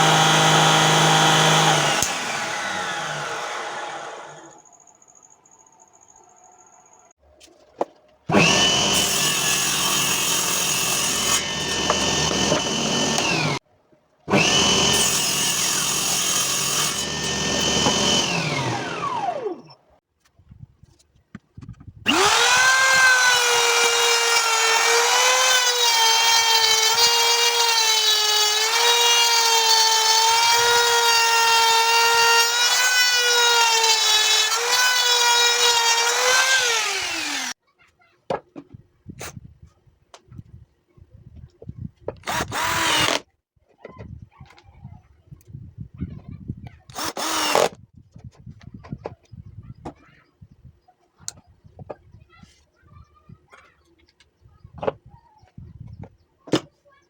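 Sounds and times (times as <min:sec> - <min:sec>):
saw cutting wood: 0:00.0 - 0:04.6, 0:08.3 - 0:13.6, 0:14.3 - 0:19.7, 0:22.1 - 0:37.6, 0:42.2 - 0:43.2, 0:46.9 - 0:47.8
table saw blade whining: 0:00.0 - 0:04.6, 0:08.3 - 0:13.6, 0:14.3 - 0:19.8, 0:22.1 - 0:37.6.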